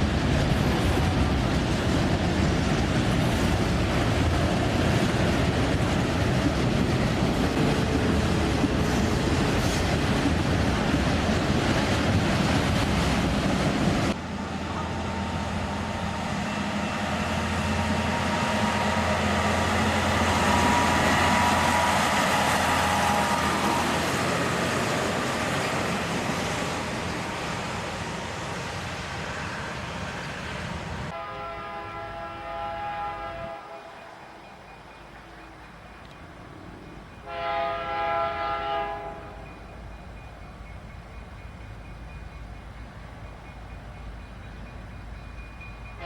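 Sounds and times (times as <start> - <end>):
train wheels rolling: 0.0 - 31.2
locomotive horn chord: 31.1 - 34.0, 37.2 - 39.5.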